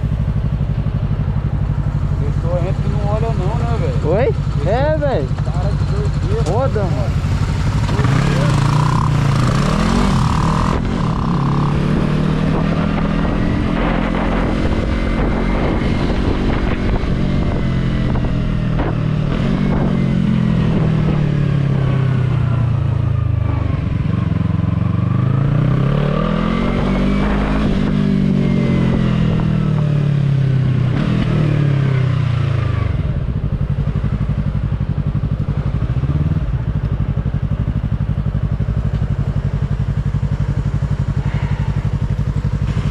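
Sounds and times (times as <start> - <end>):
motorcycle engine revving: 0.0 - 42.9
wind rushing over microphone: 6.4 - 33.7.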